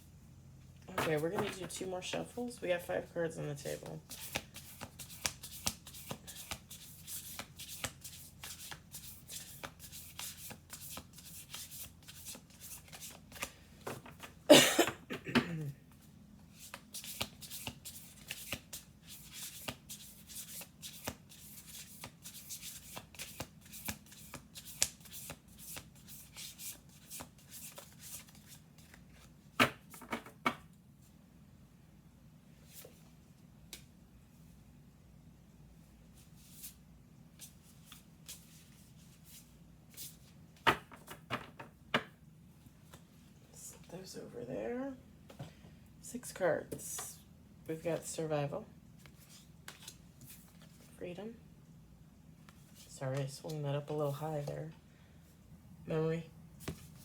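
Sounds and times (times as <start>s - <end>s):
cards being shuffled: 4.1s - 14.4s, 16.5s - 30.3s, 49.0s - 50.9s.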